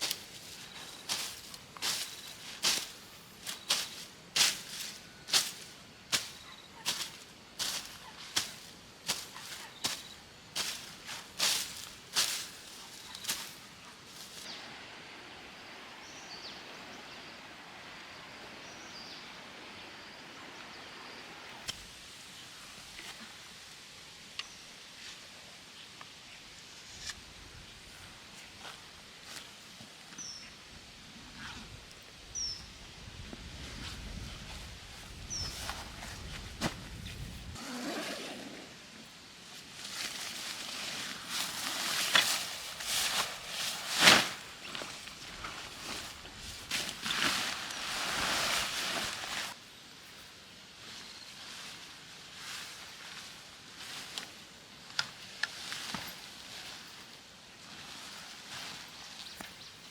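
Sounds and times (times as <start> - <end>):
leaves and twigs rustling: 0.0 - 14.7, 32.0 - 38.4, 39.0 - 59.9.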